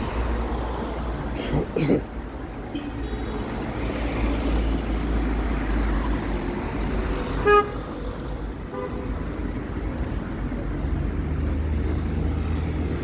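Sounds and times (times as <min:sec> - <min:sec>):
city traffic rumble: 0:00.0 - 0:13.0
car horn toot: 0:07.4 - 0:07.8.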